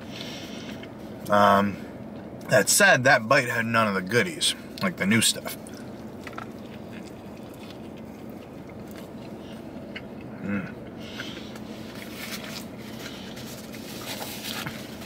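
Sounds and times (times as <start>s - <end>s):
man chewing food: 0.0s - 1.3s, 5.5s - 15.0s
low background hum: 0.0s - 15.0s
man humming mm: 10.3s - 10.9s.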